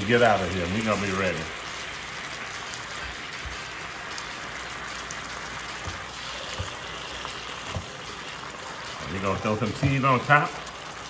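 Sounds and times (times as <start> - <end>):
chicken sizzling in skillet: 0.0 - 11.0
spatula knocks: 5.8 - 6.9, 7.7 - 8.0.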